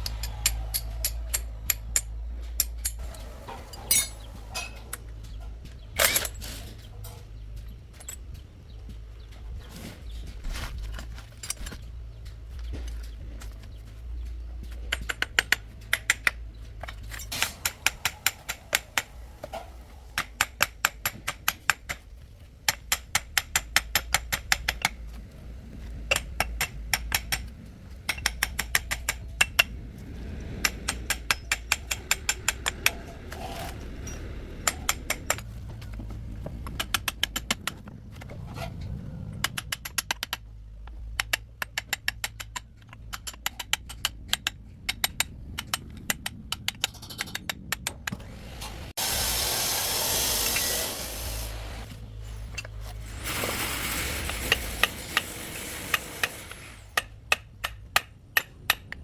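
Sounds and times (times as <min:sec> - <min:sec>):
low steady hum: 0:00.0 - 0:59.0
rapid metallic clicking: 0:26.0 - 0:38.0.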